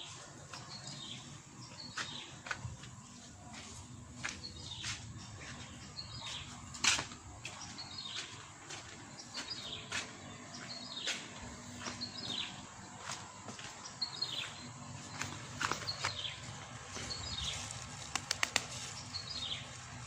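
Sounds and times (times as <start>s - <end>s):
sharp clicks: 18.1s - 18.7s.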